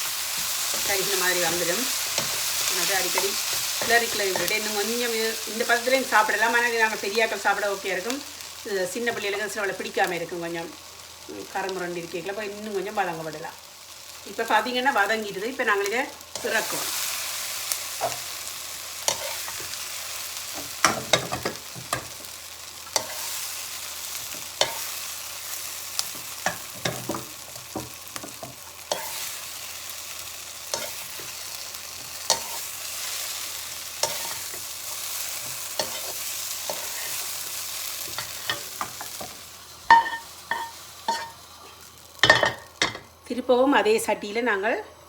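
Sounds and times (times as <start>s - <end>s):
vegetables sizzling in a frying pan: 0.0s - 45.0s
spoon scraping a pan: 19.1s - 19.8s, 22.9s - 23.4s, 27.8s - 29.5s, 30.7s - 33.2s, 34.0s - 37.4s, 38.0s - 43.0s.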